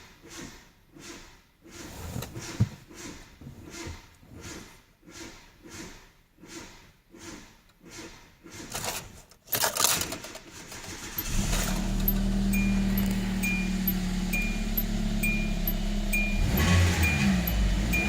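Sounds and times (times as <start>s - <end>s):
car starter cranking: 7.9s - 18.0s
car engine idling: 10.7s - 18.0s.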